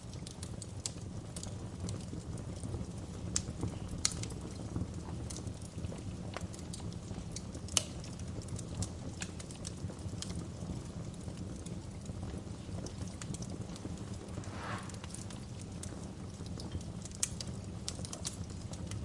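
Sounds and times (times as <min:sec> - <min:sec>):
low rumble of flames: 0:00.0 - 0:19.0
wood fire crackling and popping: 0:00.0 - 0:19.0.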